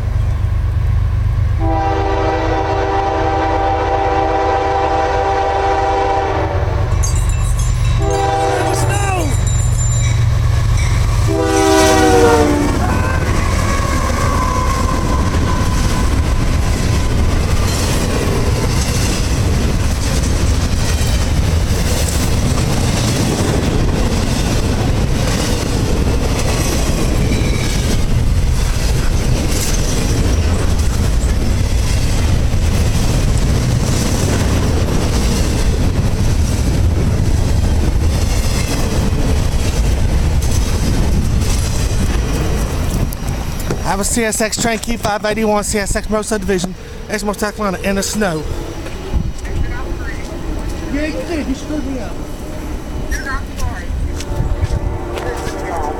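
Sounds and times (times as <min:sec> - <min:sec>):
freight train rumbling by: 0:00.0 - 0:55.9
train horn: 0:01.6 - 0:06.9, 0:08.0 - 0:09.3, 0:11.2 - 0:16.2, 0:53.9 - 0:55.9
wheels clacking over rail joints: 0:06.9 - 0:46.8.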